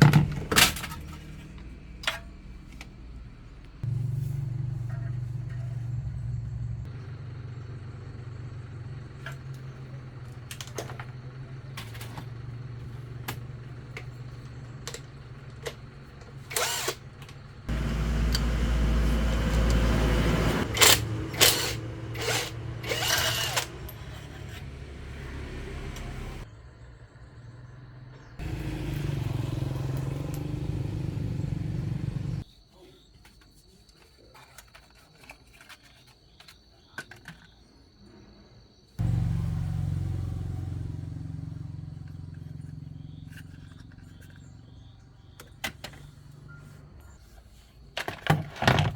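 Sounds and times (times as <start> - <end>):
motor running steadily: 3.8 - 26.4, 28.4 - 32.4.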